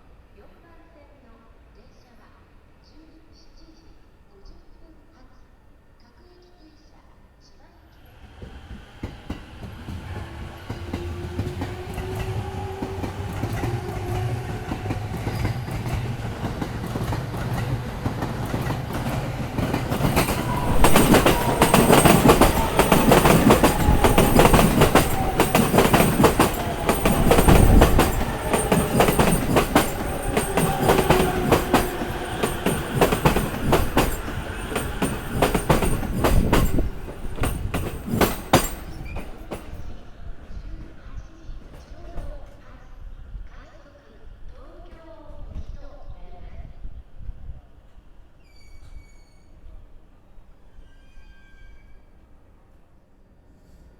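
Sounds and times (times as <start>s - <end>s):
train wheels clattering over joints: 8.4s - 40.0s.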